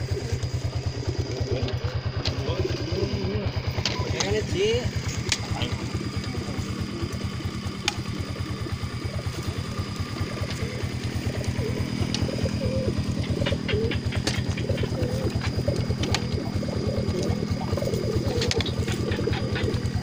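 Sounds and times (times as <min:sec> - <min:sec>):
engine idling: 0:00.0 - 0:20.0
pigeons cooing: 0:00.0 - 0:20.0
sharp clicks: 0:07.1 - 0:08.3, 0:09.9 - 0:12.4, 0:13.2 - 0:19.8.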